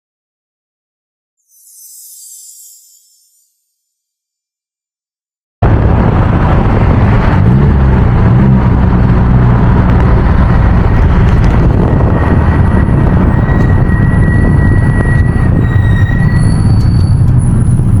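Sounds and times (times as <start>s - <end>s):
car engine revving: 5.6s - 18.0s.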